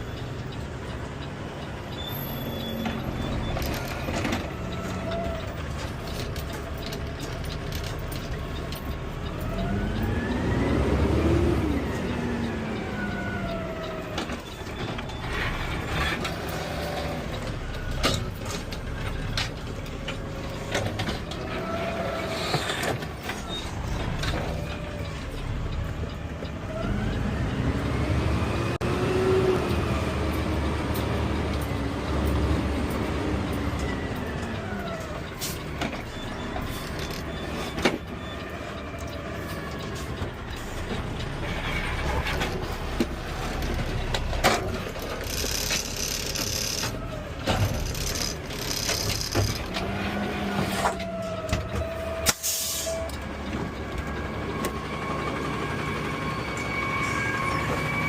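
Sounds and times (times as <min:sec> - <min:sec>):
air brakes hissing: 0:52.2 - 0:53.2.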